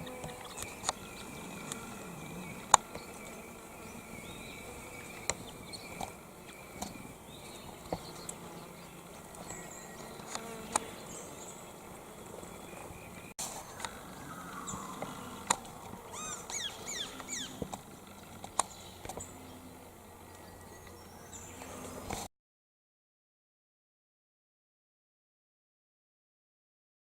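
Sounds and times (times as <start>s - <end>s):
flies buzzing: 0.0s - 22.3s
bird downward-sweeping notes: 13.1s - 15.5s.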